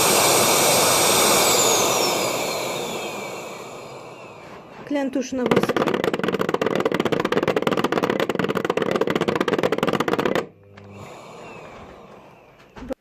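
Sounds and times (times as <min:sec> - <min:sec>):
vacuum filter rattling: 0:04.6 - 0:10.5.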